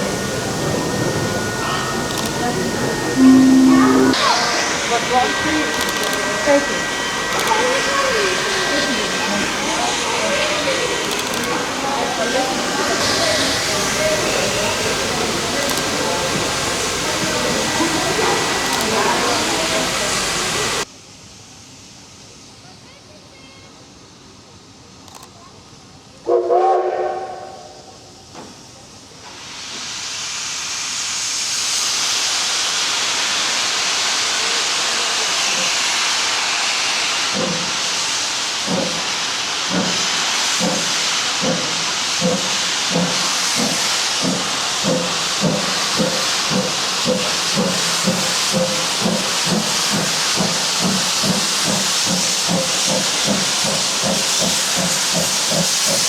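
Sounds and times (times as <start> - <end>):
steam hissing: 0.0 - 22.6, 26.7 - 56.0
steam locomotive whistle: 1.0 - 9.6, 26.3 - 28.0
locomotive exhaust chuffs: 39.7 - 56.0.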